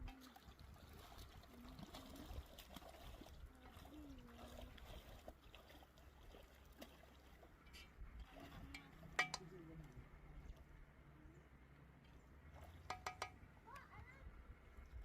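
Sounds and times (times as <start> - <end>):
river flowing: 12.4 - 13.7.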